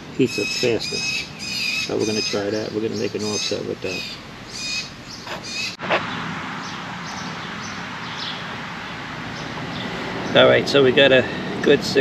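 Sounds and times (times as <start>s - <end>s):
bird calls: 0.0s - 11.7s
steady background hum: 0.0s - 12.0s
faint bird chirps: 0.2s - 8.6s.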